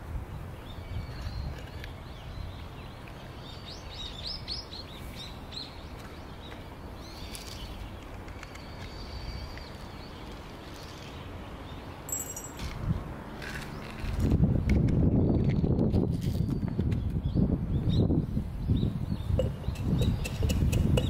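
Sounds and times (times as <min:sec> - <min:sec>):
bird chirping: 0:00.6 - 0:12.6, 0:16.4 - 0:21.0.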